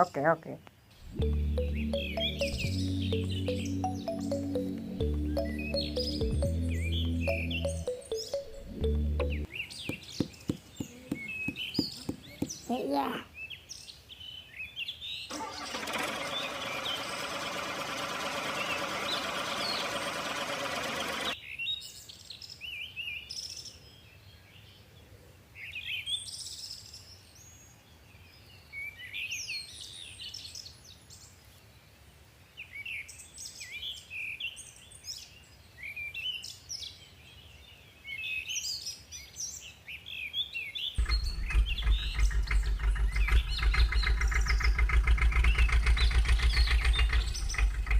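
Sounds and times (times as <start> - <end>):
small birds chirping: 0.0 - 17.2, 18.4 - 21.4, 32.7 - 47.9
low rhythmic engine chugging: 1.0 - 9.5, 41.0 - 47.9
dense buzzing noise: 41.0 - 47.9.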